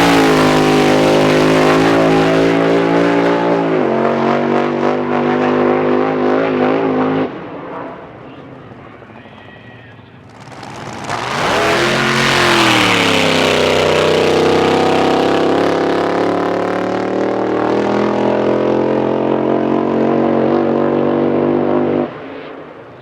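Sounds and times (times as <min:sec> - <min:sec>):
boat engine running loud: 0:00.0 - 0:03.7, 0:10.2 - 0:21.1.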